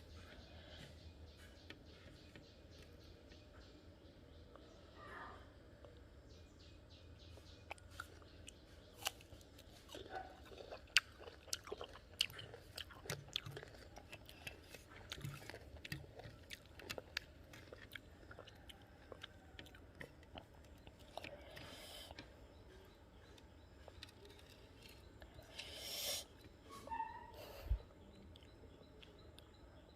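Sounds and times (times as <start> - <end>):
crunching and chewing fruit: 7.2 - 26.6, 27.8 - 29.9.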